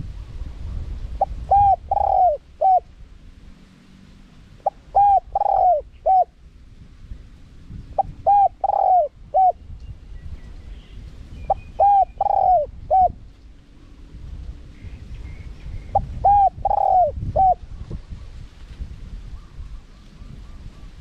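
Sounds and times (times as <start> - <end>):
dove cooing: 1.2 - 2.9, 4.6 - 6.4, 8.0 - 9.6, 11.5 - 13.2, 15.9 - 17.6.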